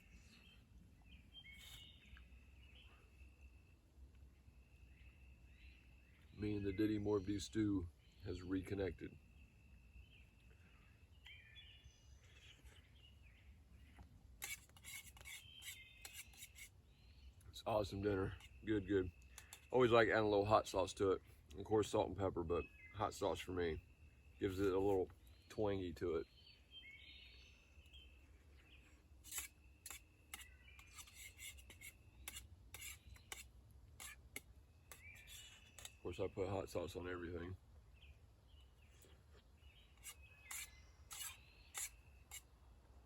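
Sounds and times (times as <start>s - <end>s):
bird calls: 0.0s - 42.5s
spoon scraping a container: 14.4s - 16.7s, 29.2s - 36.0s, 40.0s - 42.4s.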